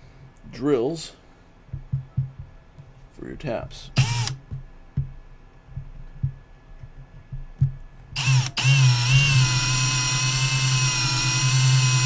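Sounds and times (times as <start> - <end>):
soft knocks: 1.7 - 2.9, 4.5 - 7.8
cordless drill whining: 4.0 - 4.4, 8.2 - 12.0.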